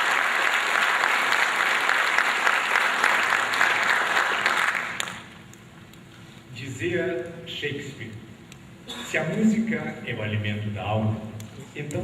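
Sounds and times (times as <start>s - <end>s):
audience applause: 0.0s - 5.3s.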